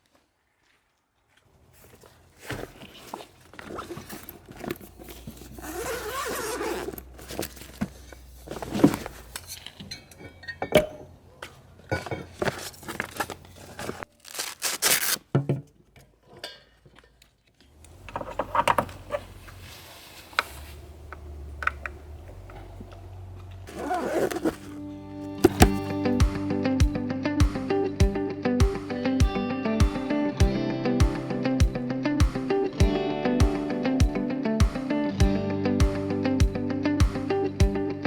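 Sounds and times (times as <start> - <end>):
gear rustling and scraping: 1.4 - 9.9, 22.2 - 24.8, 25.4 - 25.9.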